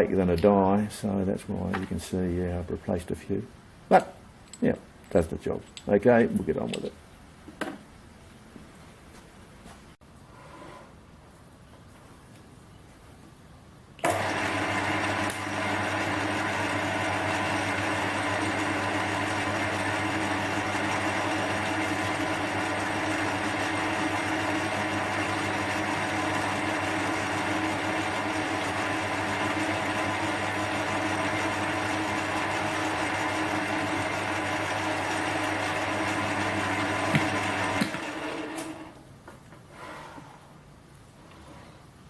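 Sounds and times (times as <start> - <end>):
metal lathe motor hum: 14.1 - 39.0.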